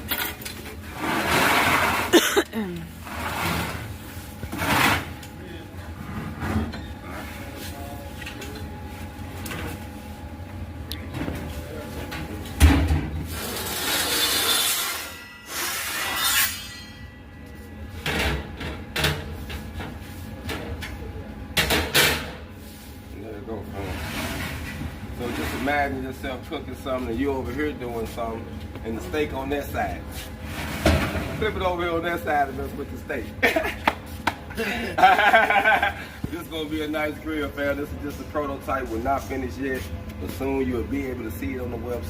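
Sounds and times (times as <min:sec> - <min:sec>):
steel grill parts scraping: 0:00.0 - 0:02.4, 0:03.0 - 0:05.2, 0:13.3 - 0:17.2, 0:23.7 - 0:25.9
sharp metal clank: 0:14.9 - 0:17.2.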